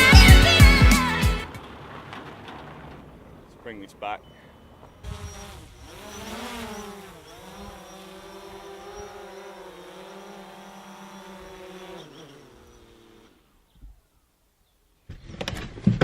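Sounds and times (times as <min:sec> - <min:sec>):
drone rotors buzzing: 0:04.0 - 0:14.0.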